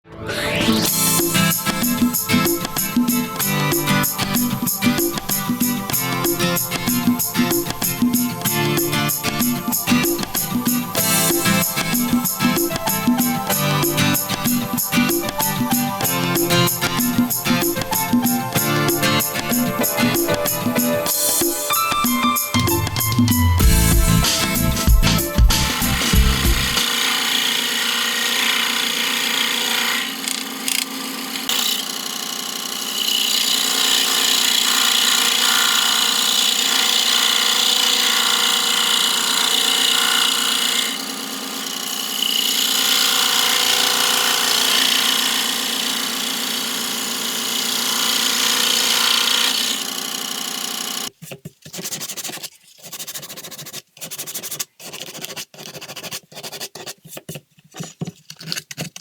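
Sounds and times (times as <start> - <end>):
power tool motor hum: 23.7 - 51.1.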